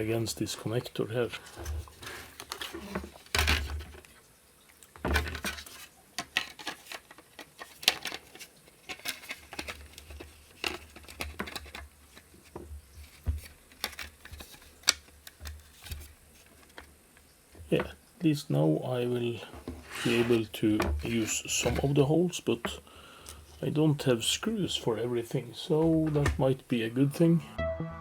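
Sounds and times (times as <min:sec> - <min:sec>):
small clicks and rattles of parts: 0:04.9 - 0:17.3.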